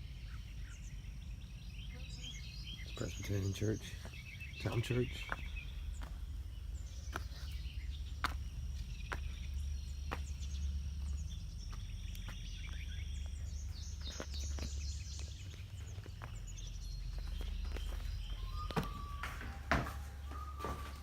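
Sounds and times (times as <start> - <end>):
birds chirping: 0.0 - 21.0
steady low rumble: 0.0 - 21.0.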